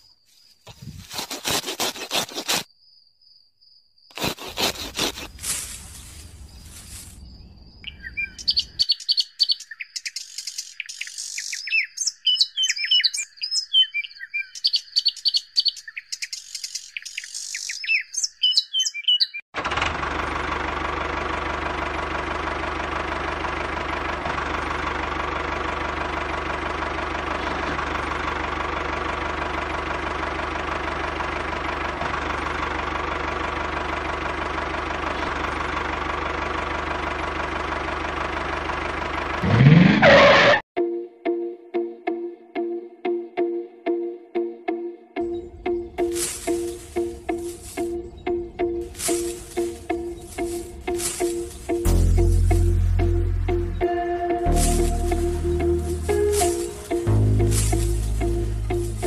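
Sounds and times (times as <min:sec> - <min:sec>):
steady engine-like hum: 0:04.3 - 0:09.4, 0:19.6 - 0:40.6, 0:45.3 - 0:59.0
birds chirping: 0:06.1 - 0:19.4, 0:45.2 - 0:59.0.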